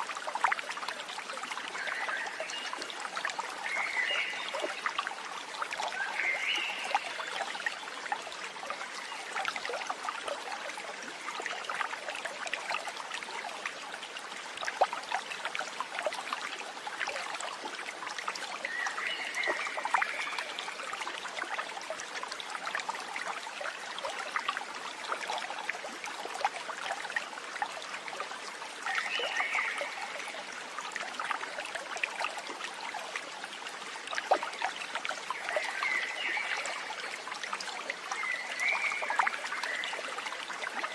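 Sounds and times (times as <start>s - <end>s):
stream trickling and babbling: 0.0s - 40.9s.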